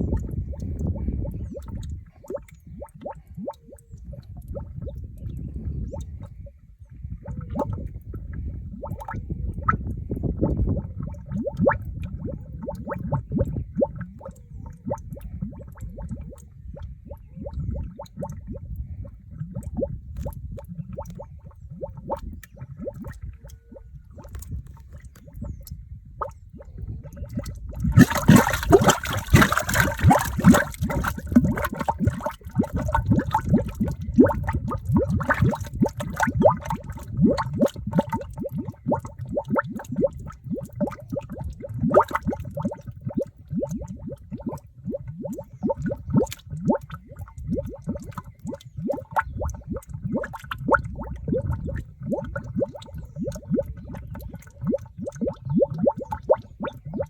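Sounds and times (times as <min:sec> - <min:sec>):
mud bubbling and gurgling: 0:00.0 - 0:57.0.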